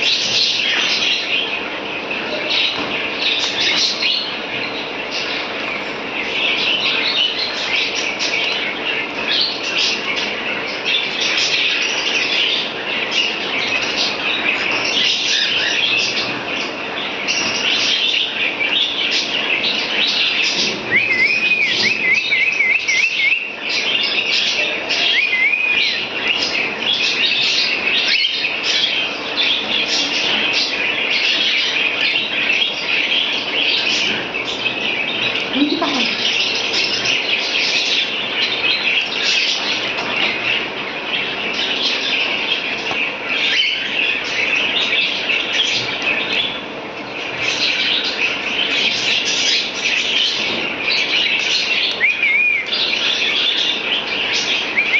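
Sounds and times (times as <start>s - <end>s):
pet birds chattering: 0.0s - 54.9s
bird whistles: 20.6s - 23.6s, 24.6s - 26.4s, 51.3s - 52.7s, 54.6s - 54.9s.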